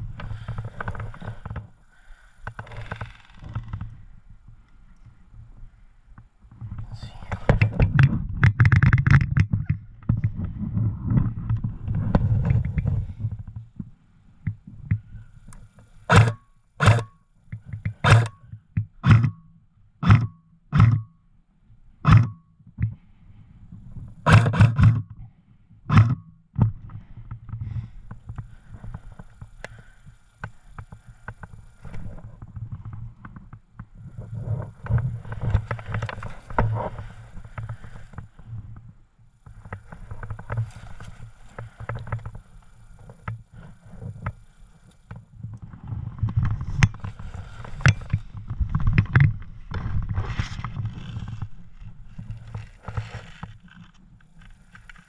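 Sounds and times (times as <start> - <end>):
sharp knocks: 16.1 - 17.1.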